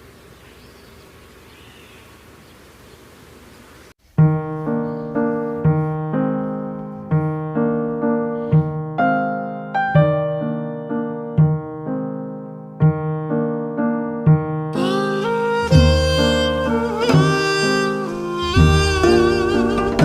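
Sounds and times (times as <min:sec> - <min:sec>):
faint outdoor ambience: 0:00.0 - 0:08.2
gentle piano music: 0:04.2 - 0:20.0.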